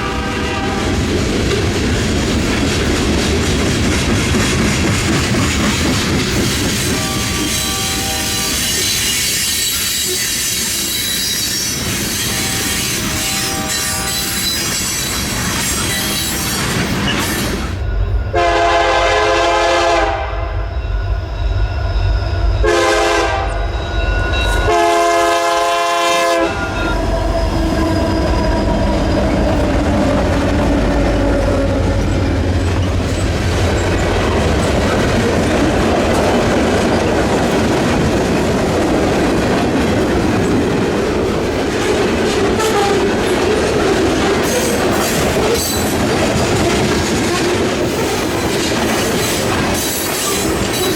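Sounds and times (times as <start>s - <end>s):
train air horn blasts: 0.0s - 1.0s, 6.9s - 8.7s, 12.2s - 14.5s, 18.3s - 20.6s, 22.6s - 23.6s, 24.6s - 26.9s, 42.6s - 43.1s
wheels clattering on rail: 0.9s - 17.9s, 24.0s - 50.9s
locomotive rumble: 21.0s - 50.9s.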